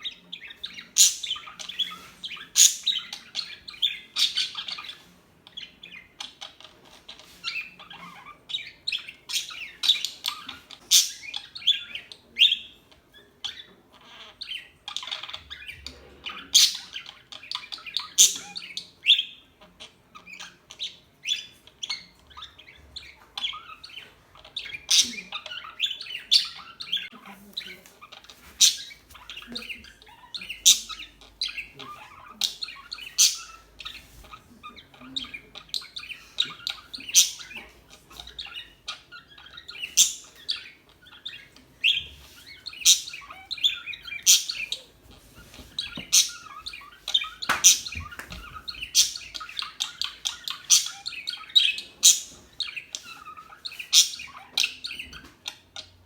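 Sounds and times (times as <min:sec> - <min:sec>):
budgerigars warbling chatter: 0:00.0 - 0:56.0
sharp loud budgerigar chirps: 0:00.6 - 0:05.0, 0:32.4 - 0:33.7, 0:35.8 - 0:37.7, 0:38.4 - 0:44.8, 0:48.7 - 0:52.9.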